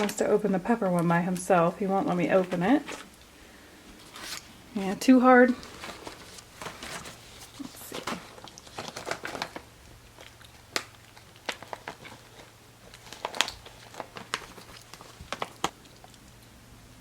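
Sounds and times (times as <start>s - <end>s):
snack pouch crinkling: 5.5s - 16.4s.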